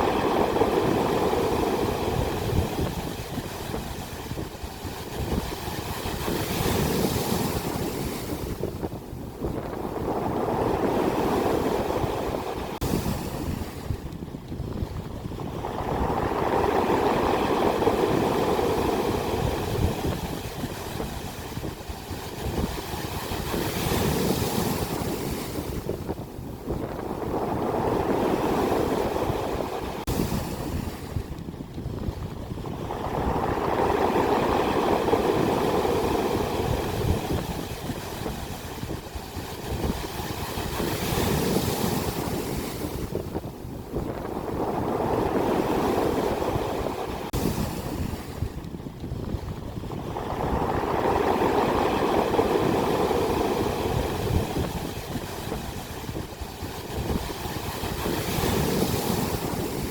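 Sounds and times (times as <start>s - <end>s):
ocean waves breaking on shore: 0.0s - 59.9s.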